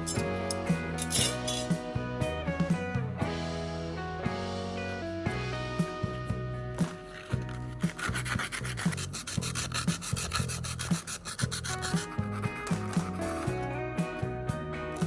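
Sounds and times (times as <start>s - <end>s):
background music with steady beat: 0.0s - 15.0s
rhythmic rubbing strokes: 6.8s - 13.6s.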